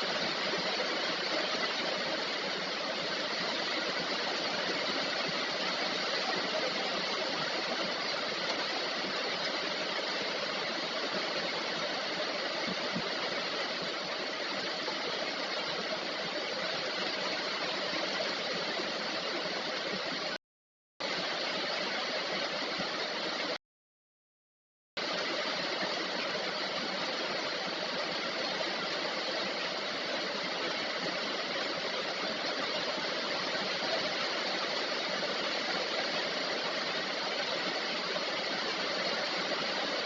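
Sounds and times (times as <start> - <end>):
heavy rain falling: 0.0 - 20.4, 25.0 - 40.0.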